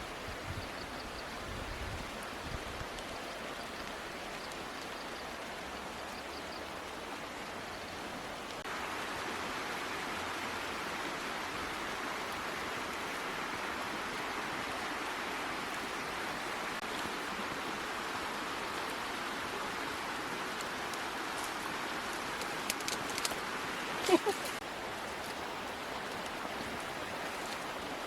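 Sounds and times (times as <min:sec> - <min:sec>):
rushing water: 0:00.0 - 0:28.0.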